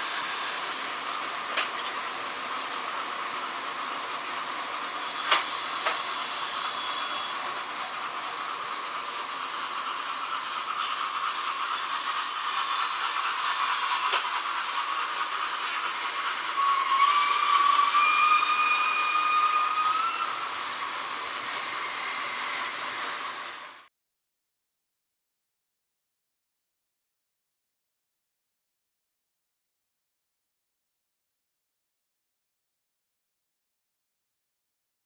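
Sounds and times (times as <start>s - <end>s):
model trains rumbling: 0.0s - 23.9s
model steam locomotive whistle: 4.8s - 7.6s, 16.4s - 20.6s
sharp track clicks: 5.2s - 6.0s, 14.0s - 14.6s.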